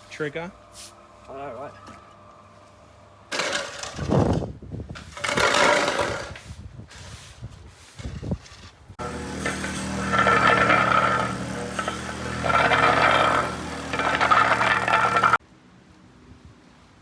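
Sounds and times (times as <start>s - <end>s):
small engine running: 9.0s - 15.4s.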